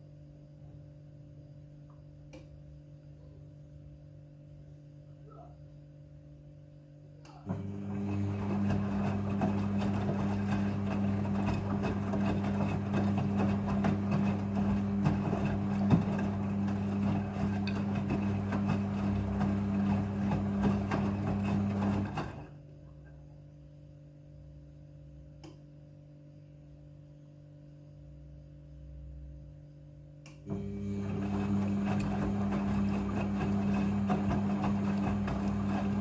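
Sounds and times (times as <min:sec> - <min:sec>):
washing machine pump hum: 0:07.5 - 0:22.7, 0:30.4 - 0:36.0.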